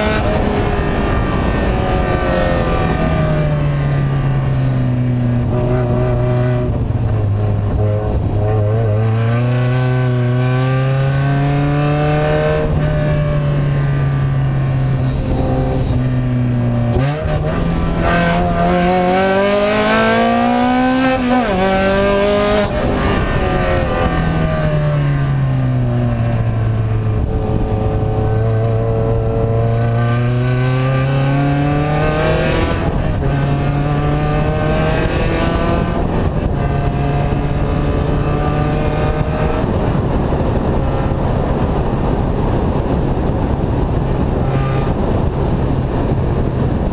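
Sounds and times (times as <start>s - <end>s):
loud unmuffled engine revving: 0.0s - 25.4s, 26.3s - 46.9s.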